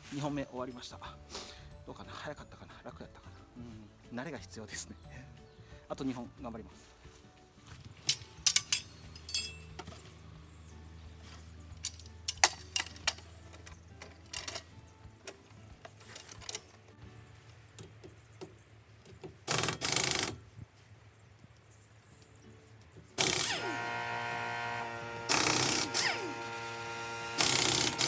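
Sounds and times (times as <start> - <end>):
metal tools clinking: 8.0 - 10.1, 11.2 - 16.9
air impact wrench bursts: 19.5 - 20.4, 23.2 - 28.0
air motor running: 23.2 - 28.0.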